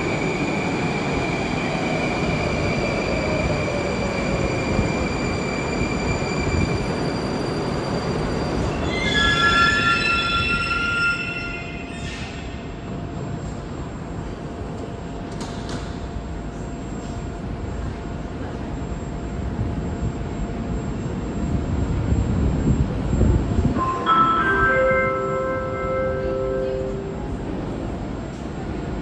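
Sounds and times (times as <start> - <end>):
high squeal of steady tones: 0.0 - 14.8
train rumbling on track: 0.0 - 29.0.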